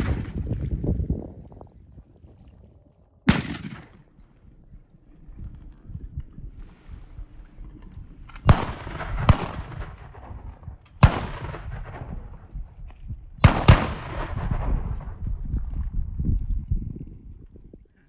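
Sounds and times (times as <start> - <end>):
shotgun shots with echo: 0.0 - 0.5, 3.3 - 4.2, 8.5 - 10.0, 11.0 - 12.3, 13.4 - 14.8
wind rumble: 0.0 - 18.0.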